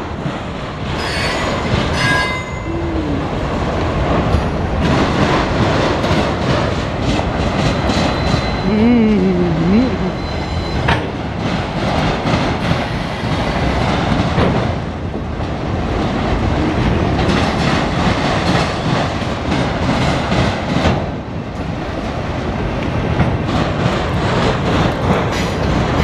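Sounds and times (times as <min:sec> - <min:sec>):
train wheels rumbling on rail: 0:00.0 - 0:26.0
wheels clicking over rail joints: 0:10.8 - 0:26.0.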